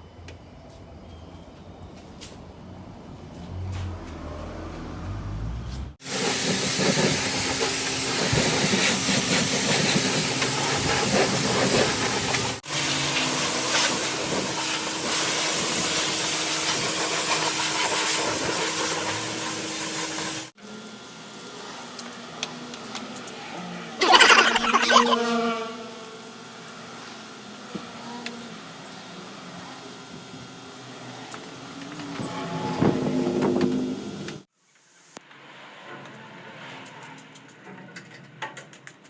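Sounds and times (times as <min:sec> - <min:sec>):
pressure washer spraying water: 0:06.1 - 0:14.0.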